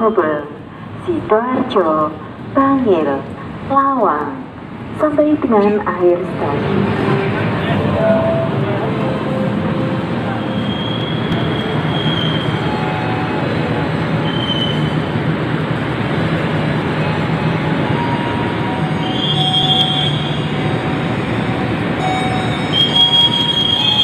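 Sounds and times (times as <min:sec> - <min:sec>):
train carriages rolling past: 0:04.7 - 0:24.0
wheels squealing: 0:10.4 - 0:12.8, 0:17.9 - 0:21.2, 0:22.0 - 0:24.0.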